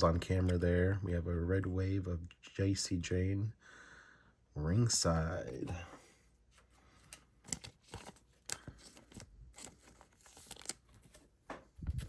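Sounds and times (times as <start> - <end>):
trading cards sliding: 7.0 - 11.3.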